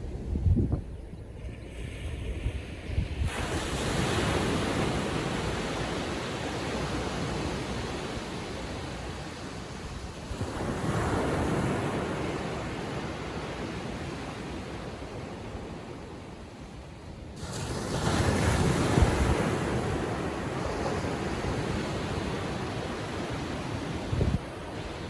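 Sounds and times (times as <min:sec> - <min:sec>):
wind buffeting microphone: 0:00.0 - 0:05.6, 0:18.2 - 0:25.0
small waves breaking on sand: 0:01.6 - 0:16.5, 0:17.3 - 0:25.0.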